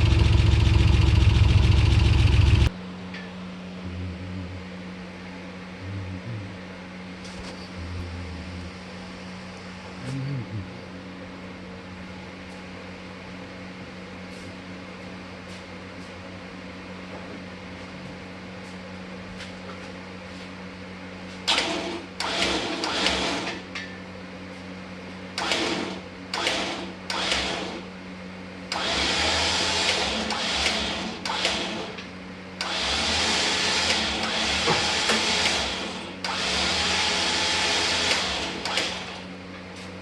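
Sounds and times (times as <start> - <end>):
noisy tool running: 0.0 - 2.8, 21.5 - 23.9, 25.4 - 27.9, 28.7 - 39.4
steady low hum: 0.0 - 22.8.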